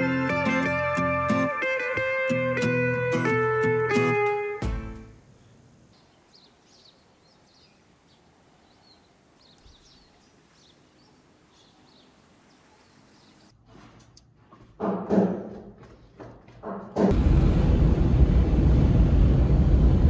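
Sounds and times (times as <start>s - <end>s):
faint high bird chirps: 5.4s - 13.5s
loud rushing noise with low hum: 17.1s - 20.0s.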